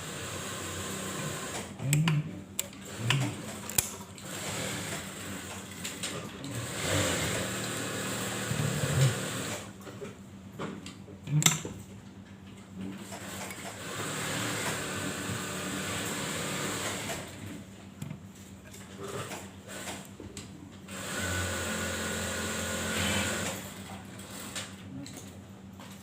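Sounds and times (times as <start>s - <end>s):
sewing machine running: 0.0s - 1.7s, 4.2s - 5.8s, 6.5s - 9.7s, 13.0s - 17.5s, 20.9s - 24.4s.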